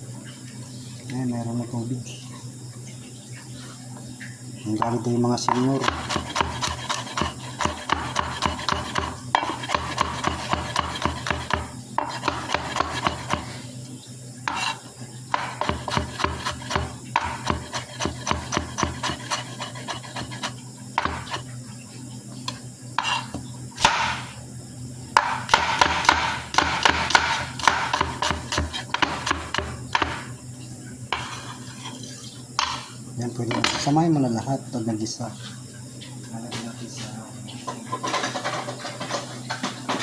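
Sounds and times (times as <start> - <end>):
knife chopping on cutting board: 4.8 - 13.5, 14.5 - 21.4, 22.5 - 24.3, 25.2 - 30.3, 31.1 - 31.6.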